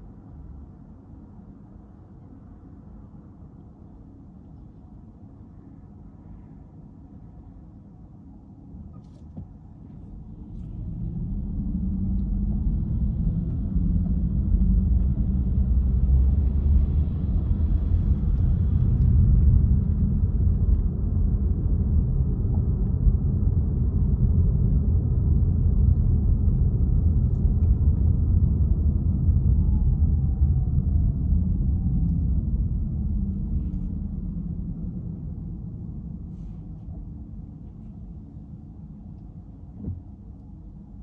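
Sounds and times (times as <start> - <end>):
car engine and road rumble: 0.0 - 41.0.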